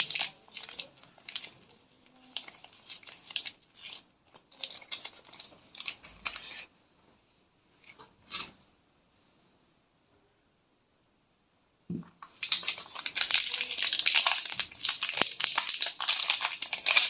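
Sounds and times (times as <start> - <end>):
paper rustling: 0.0 - 6.7, 12.2 - 17.0
paper wrappers crinkling and tearing: 0.0 - 6.7, 12.2 - 17.0.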